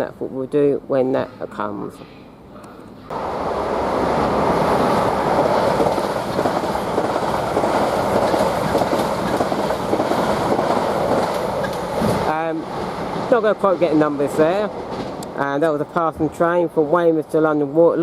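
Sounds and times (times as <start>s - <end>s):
train wheels rumbling on rails: 3.1s - 16.9s
wheels clicking over rail joints: 4.8s - 12.3s.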